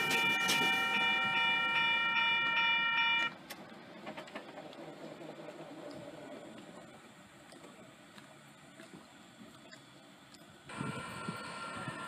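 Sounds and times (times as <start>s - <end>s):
high-pitched ringing tones: 0.0s - 3.4s
faint train rumble: 0.0s - 12.0s.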